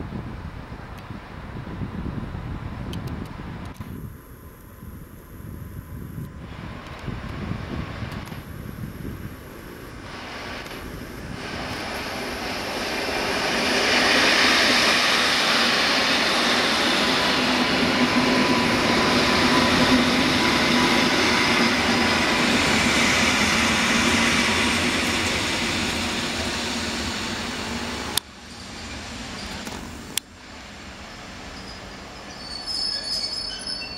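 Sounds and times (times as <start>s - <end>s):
train wheels rumbling on rail: 6.5s - 33.9s.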